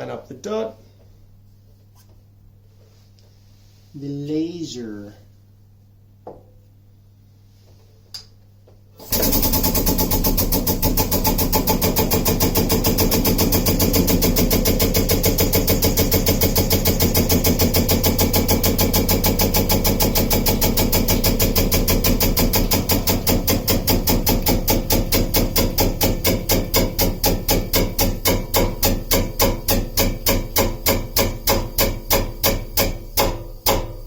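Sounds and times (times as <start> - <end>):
press motor pulsing: 9.0 - 34.0.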